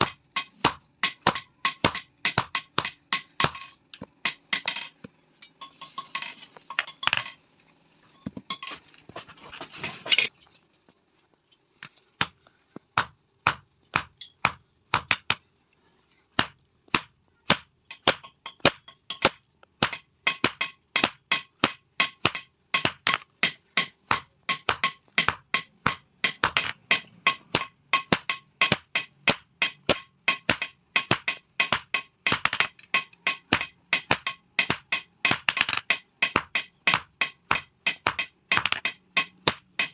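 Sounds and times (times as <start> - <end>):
hammer striking steel on anvil: 0.0 - 7.3, 13.0 - 15.4, 16.4 - 39.9
metal clatter: 0.0 - 7.5, 16.4 - 39.9.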